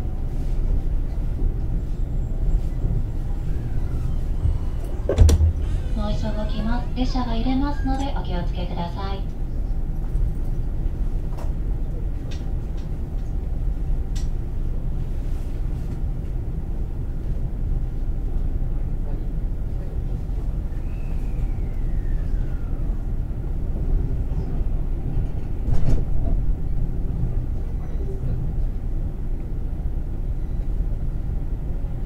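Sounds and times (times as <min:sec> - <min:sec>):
wheels rumbling on rail: 0:00.0 - 0:32.0
falling whine: 0:03.0 - 0:08.0
loud knock: 0:04.5 - 0:05.8.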